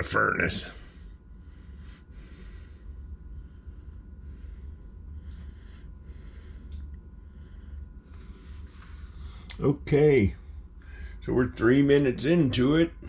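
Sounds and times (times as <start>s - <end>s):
heater humming: 0.0s - 13.0s
person breathing: 0.6s - 9.6s, 10.2s - 11.4s.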